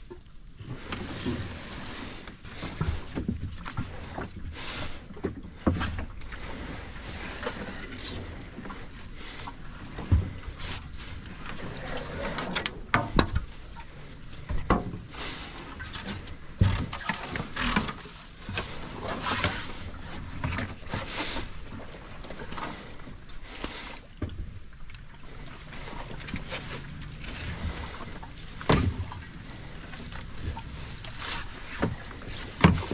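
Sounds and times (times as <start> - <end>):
paddle splashing in water: 0.0 - 32.9.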